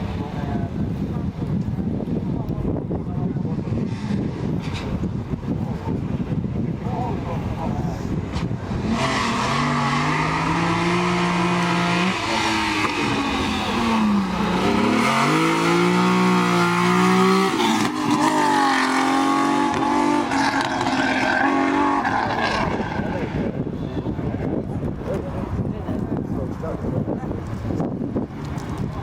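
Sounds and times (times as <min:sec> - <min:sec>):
rally car engine at high revs: 0:08.4 - 0:23.6.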